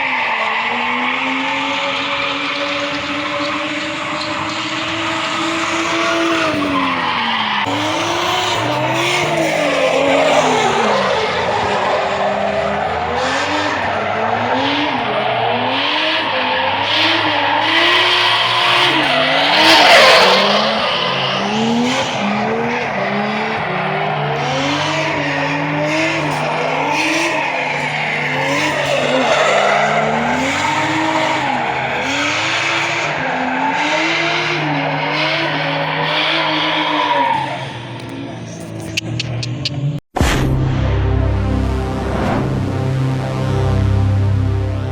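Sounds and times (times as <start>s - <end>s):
tyres skidding and squealing: 0.0s - 40.0s
car engine revving: 0.0s - 44.9s
steady low drone: 40.2s - 44.9s.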